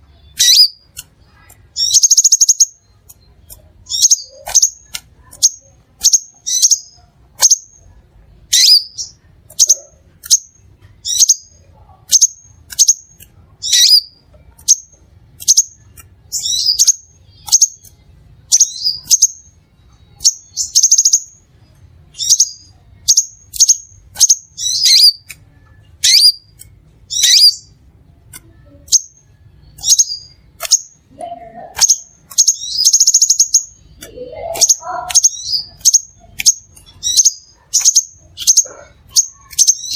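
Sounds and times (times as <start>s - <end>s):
sunbird chirping: 0.2s - 7.7s, 28.6s - 39.9s.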